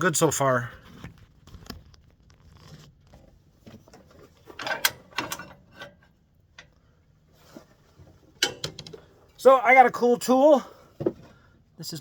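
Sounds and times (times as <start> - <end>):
tools clicking and clattering: 3.9 - 6.8, 8.3 - 9.1.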